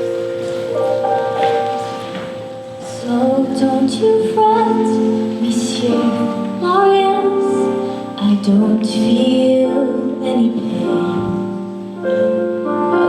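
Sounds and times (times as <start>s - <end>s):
accompaniment chords: 0.0s - 13.0s
woman singing: 2.8s - 11.8s.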